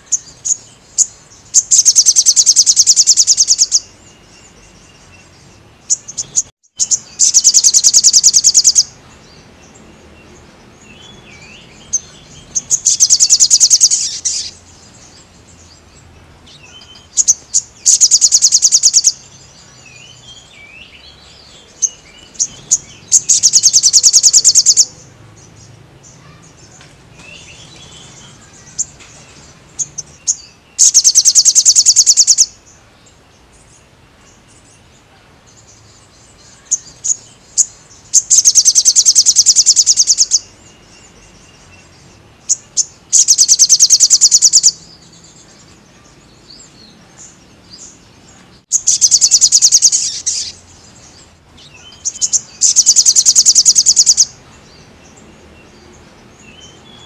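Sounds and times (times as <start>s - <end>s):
bird singing high-pitched trills: 0.0s - 15.8s, 16.5s - 26.6s, 27.3s - 32.7s, 35.6s - 47.0s, 48.7s - 57.0s
bird chirps: 0.0s - 57.0s.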